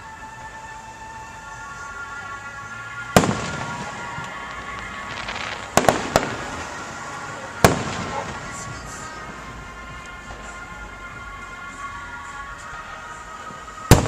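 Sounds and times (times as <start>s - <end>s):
fireworks crackling: 0.0s - 14.0s
fireworks bangs: 2.9s - 10.3s, 13.5s - 14.0s.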